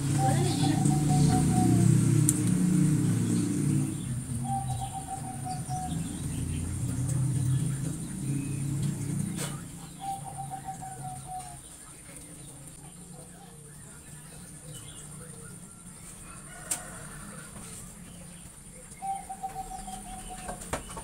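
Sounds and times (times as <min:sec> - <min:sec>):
low rumble: 0:00.0 - 0:11.5
bird trill: 0:03.3 - 0:06.8, 0:09.7 - 0:11.7, 0:19.0 - 0:21.0.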